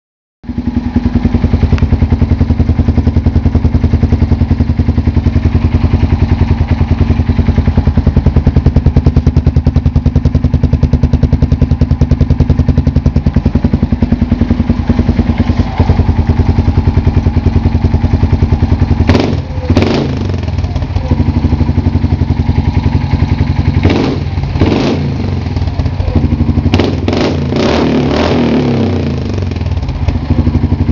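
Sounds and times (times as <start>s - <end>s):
atv engine idling: 0.4s - 30.9s
engine revving: 11.0s - 30.9s.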